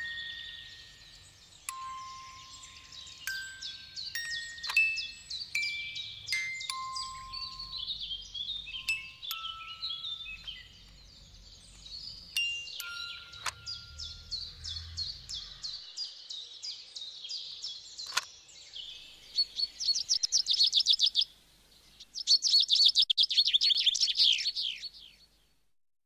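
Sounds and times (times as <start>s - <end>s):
bird chirping and trilling: 0.0s - 25.3s
sharp click: 13.4s - 13.8s, 18.0s - 18.3s.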